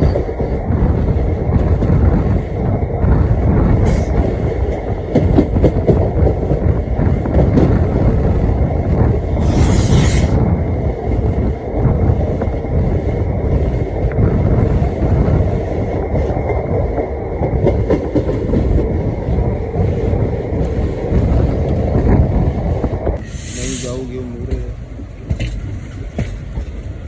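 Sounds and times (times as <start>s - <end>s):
train wheels rumbling on rails: 0.0s - 27.0s
short hiss: 23.2s - 24.0s.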